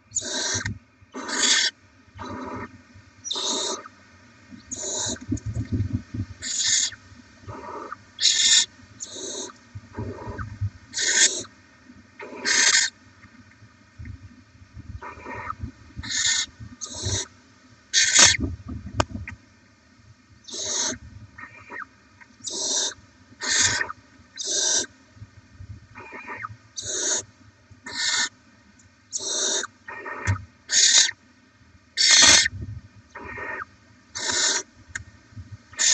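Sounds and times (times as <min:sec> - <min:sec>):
owl chicks hissing begging calls: 0:00.1 - 0:03.9, 0:04.7 - 0:05.2, 0:06.4 - 0:11.5, 0:12.2 - 0:12.9, 0:15.0 - 0:17.3, 0:17.9 - 0:18.4, 0:20.4 - 0:21.8, 0:22.4 - 0:24.9, 0:26.0 - 0:27.3, 0:27.9 - 0:28.3, 0:29.1 - 0:31.2, 0:32.0 - 0:32.5, 0:33.2 - 0:34.7.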